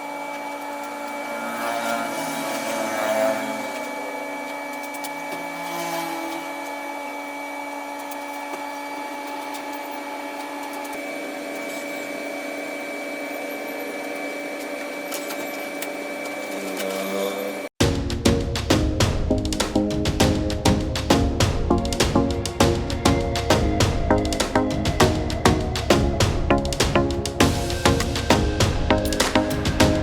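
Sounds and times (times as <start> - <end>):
small electric motor whining: 0.0 - 17.7.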